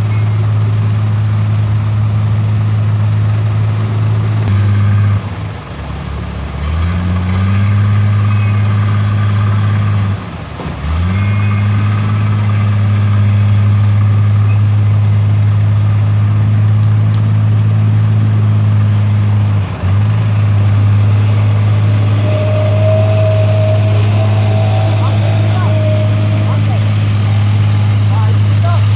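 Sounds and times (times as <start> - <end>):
diesel engine running: 0.0 - 28.9
thin high whine: 20.6 - 28.9.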